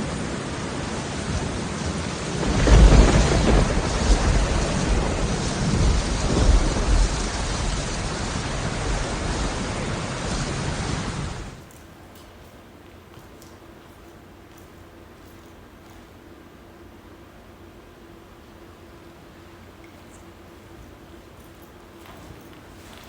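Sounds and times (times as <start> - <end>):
thunder rumbling: 0.0 - 11.6
steady rain: 0.0 - 15.1.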